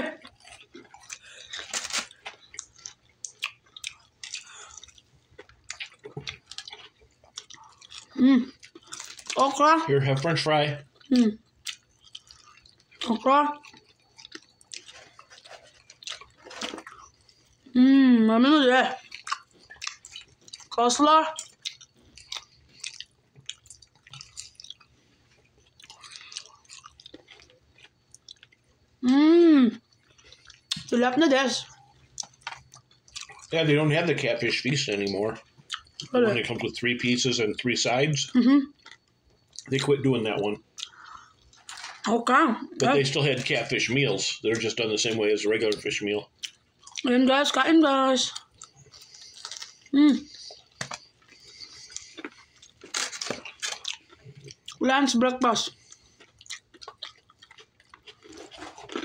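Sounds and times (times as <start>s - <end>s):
person chewing food: 0.2s - 9.5s, 10.2s - 17.7s, 19.0s - 28.9s, 29.8s - 30.9s, 31.6s - 33.6s, 34.9s - 36.6s, 38.7s - 42.1s, 45.6s - 47.1s, 48.3s - 54.8s, 55.6s - 59.0s
wet mouth sounds: 48.3s - 54.8s.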